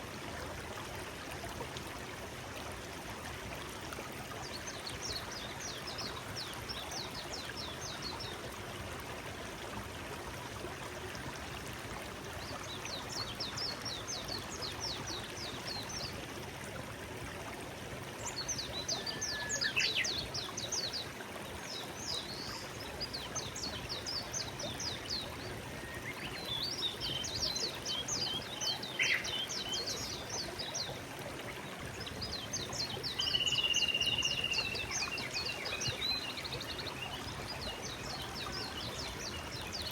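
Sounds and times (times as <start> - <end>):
stream flowing: 0.0 - 39.9
songbird chirping: 23.4 - 30.7, 32.1 - 39.9.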